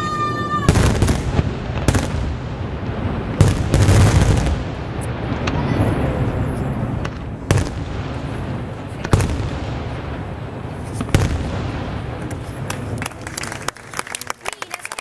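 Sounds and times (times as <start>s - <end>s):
firework shells booming: 0.6s - 13.7s
rapid firework pops: 7.0s - 8.2s, 10.9s - 15.0s.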